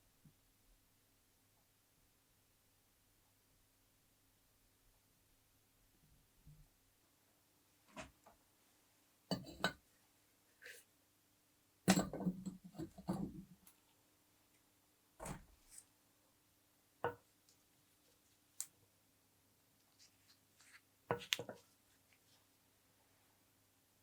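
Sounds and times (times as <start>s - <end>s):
objects knocking and clinking: 9.3s - 9.8s, 11.9s - 13.4s.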